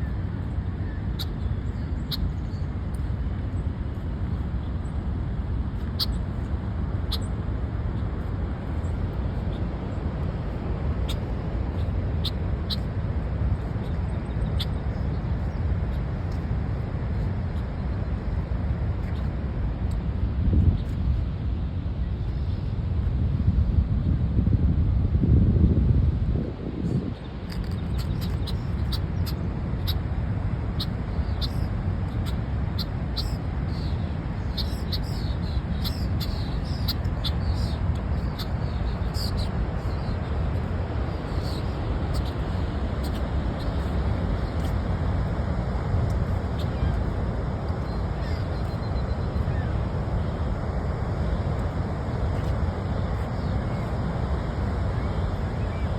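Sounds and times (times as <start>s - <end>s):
bird chirping: 31.2s - 40.2s.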